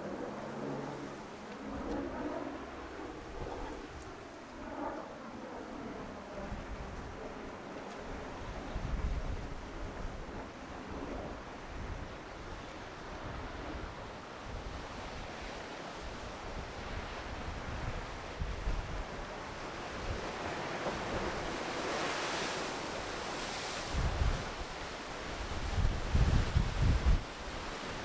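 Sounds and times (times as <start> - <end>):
wind buffeting microphone: 8.1 - 15.5, 23.9 - 28.0
ocean surf washing ashore: 12.4 - 28.0.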